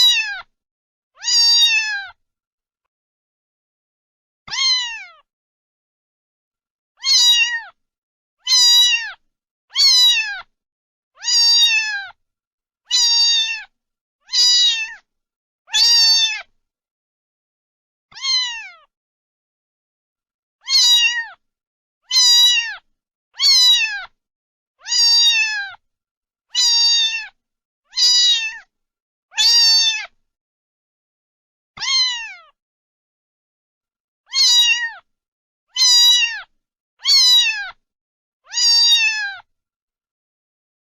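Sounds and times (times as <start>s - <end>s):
cat meowing: 0.0s - 0.5s, 1.2s - 2.2s, 4.5s - 5.3s, 7.0s - 7.8s, 8.4s - 10.5s, 11.2s - 12.2s, 12.9s - 13.7s, 14.3s - 15.0s, 15.7s - 16.5s, 18.1s - 18.9s, 20.6s - 21.4s, 22.1s - 24.2s, 24.8s - 25.8s, 26.5s - 28.7s, 29.3s - 30.2s, 31.8s - 32.6s, 34.3s - 35.1s, 35.7s - 37.8s, 38.5s - 39.5s.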